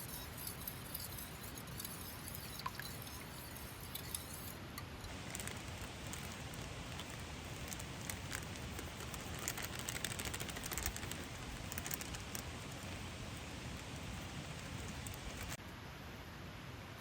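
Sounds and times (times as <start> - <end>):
campfire crackling: 0.0 - 15.6
fire pops and snaps: 5.1 - 15.6.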